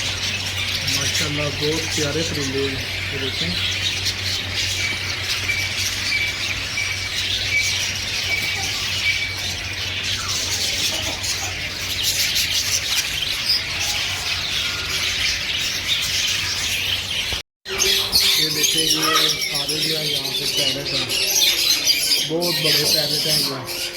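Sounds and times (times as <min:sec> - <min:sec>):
steady low hum: 0:00.0 - 0:13.7
caged birds chirping: 0:00.0 - 0:23.9.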